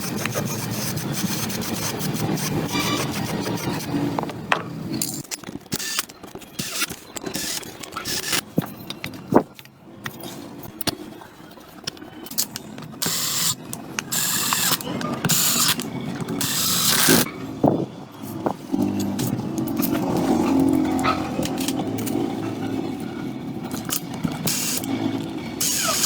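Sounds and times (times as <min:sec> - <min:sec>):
ratchet clicking: 0:05.0 - 0:08.4, 0:13.0 - 0:15.8, 0:16.4 - 0:17.3, 0:23.7 - 0:26.0.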